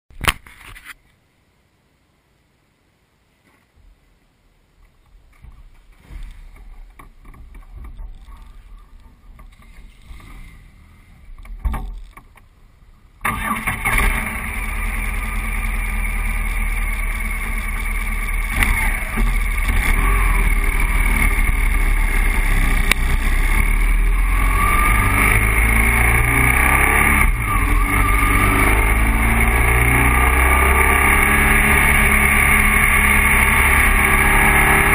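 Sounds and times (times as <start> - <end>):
faint rustling: 3.3 - 13.0
motorcycle engine running: 13.8 - 34.9.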